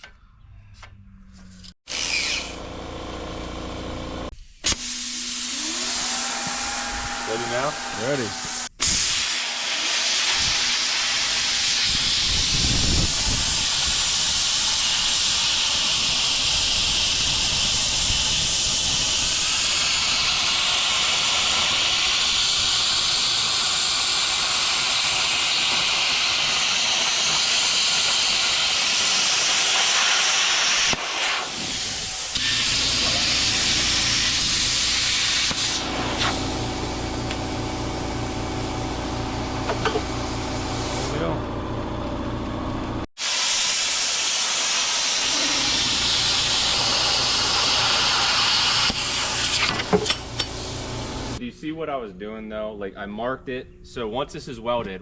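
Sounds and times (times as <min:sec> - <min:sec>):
welding arc hissing: 0:01.9 - 0:02.6, 0:04.6 - 0:41.3, 0:43.2 - 0:51.4
low motor hum: 0:02.4 - 0:04.3, 0:35.8 - 0:43.1.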